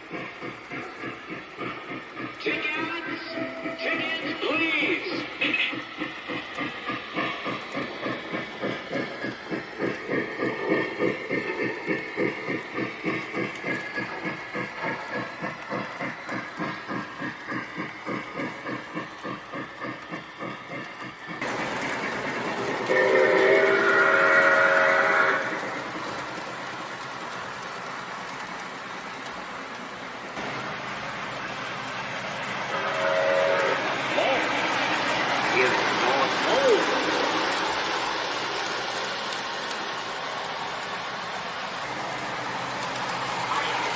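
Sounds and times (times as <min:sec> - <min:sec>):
model train steam chuffing: 0:00.0 - 0:43.9
steam hissing: 0:00.0 - 0:43.9
train whistle: 0:22.8 - 0:25.7, 0:32.7 - 0:34.0.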